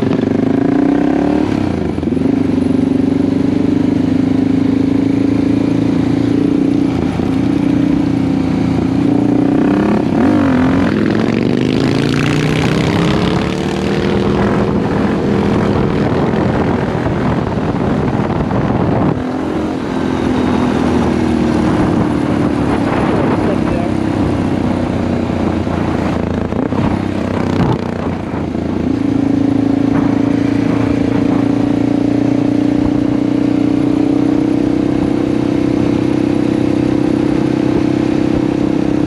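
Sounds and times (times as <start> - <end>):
motorcycle engine accelerating: 0.0 - 39.0
wind rushing over microphone: 0.0 - 39.0.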